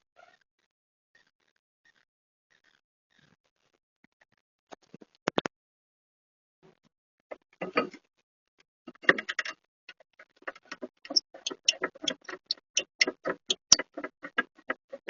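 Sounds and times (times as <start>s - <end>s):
sharp mechanical clicks: 10.5s - 15.0s.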